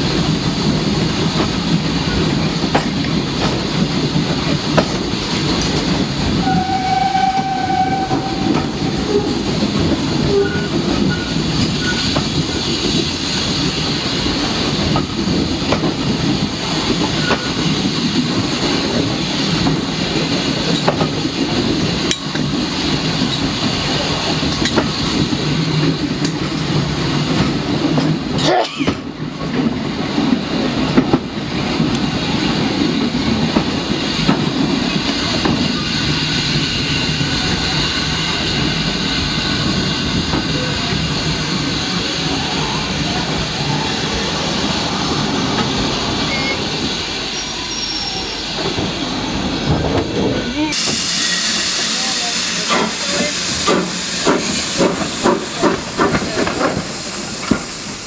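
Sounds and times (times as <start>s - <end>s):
train wheels rumbling on rail: 0.0s - 58.0s
clicking at rail joints: 0.7s - 6.6s, 14.4s - 32.2s, 53.6s - 57.7s.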